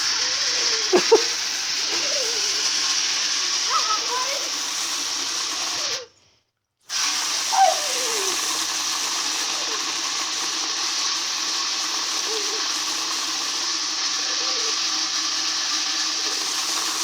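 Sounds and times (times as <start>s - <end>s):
dog whining: 0.0s - 2.8s, 7.4s - 8.5s.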